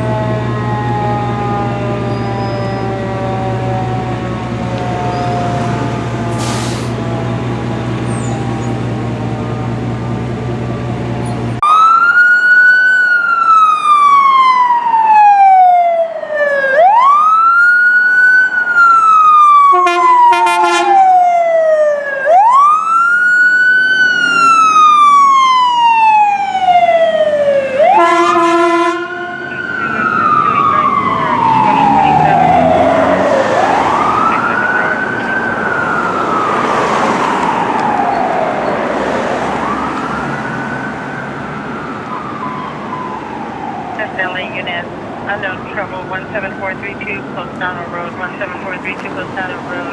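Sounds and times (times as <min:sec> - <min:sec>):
siren wailing: 0:00.0 - 0:11.0, 0:11.6 - 0:49.9
fire engine idling: 0:02.9 - 0:11.6, 0:22.4 - 0:32.5, 0:33.5 - 0:49.9
air horn blasts: 0:19.7 - 0:21.2, 0:27.8 - 0:29.5.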